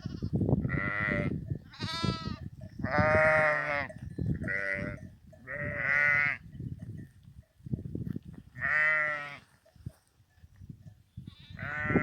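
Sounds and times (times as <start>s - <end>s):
sheep bleating: 0.0s - 6.4s, 8.6s - 9.5s, 11.3s - 12.0s.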